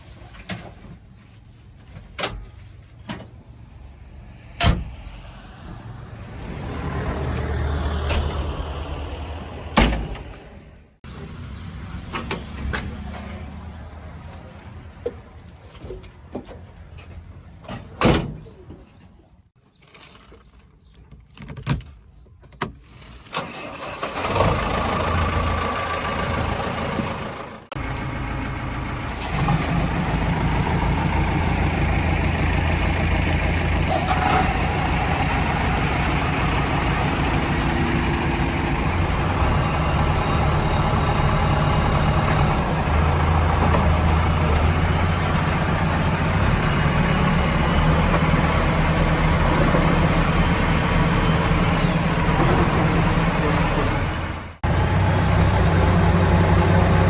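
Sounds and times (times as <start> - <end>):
diesel engine starting and idling: 23.0 - 57.0.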